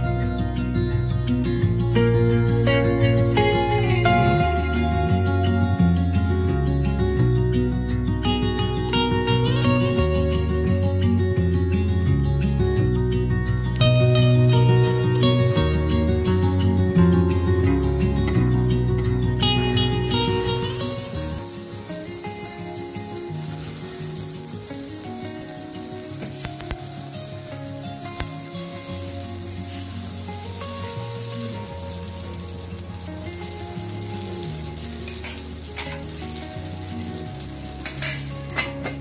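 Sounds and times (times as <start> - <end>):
soft background music: 0.0 - 39.0
oil sizzling in a pan: 14.3 - 39.0.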